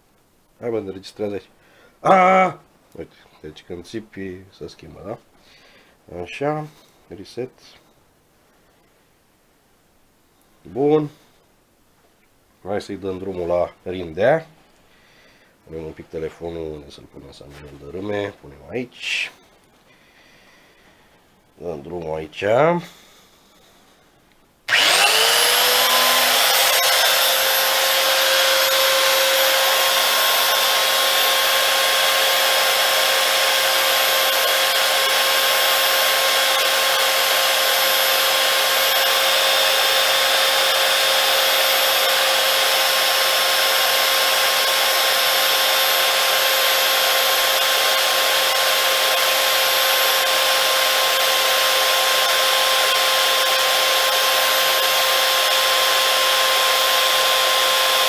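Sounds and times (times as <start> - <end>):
belt sander running: 24.7 - 58.0.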